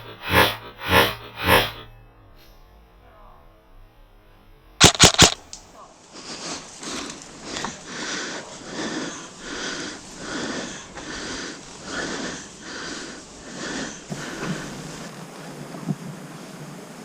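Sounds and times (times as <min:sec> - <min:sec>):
person breathing hard: 0:06.2 - 0:15.0.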